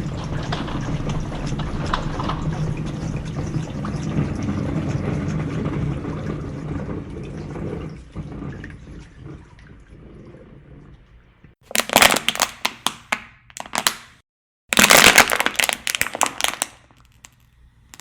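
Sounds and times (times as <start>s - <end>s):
water running with splashes: 0.0s - 11.6s.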